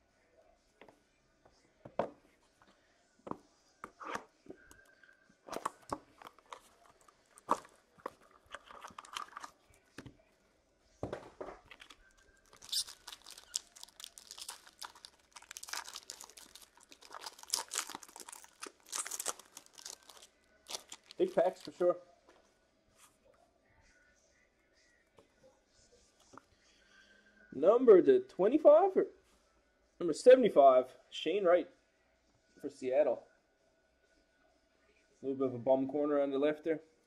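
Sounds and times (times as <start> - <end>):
packaging crinkling and tearing: 5.6 - 9.6, 11.7 - 21.8.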